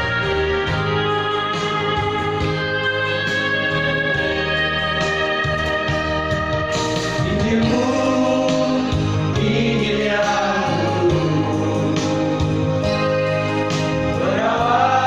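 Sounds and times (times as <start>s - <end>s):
guitar accompaniment: 0.0s - 15.0s
vocal group singing gospel: 7.2s - 12.8s, 13.9s - 15.0s.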